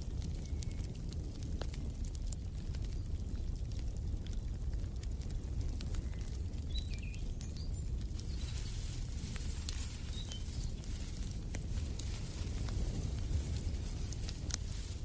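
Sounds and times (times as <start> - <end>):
wood fire crackling: 0.0 - 15.0
small birds chirping: 5.8 - 12.1.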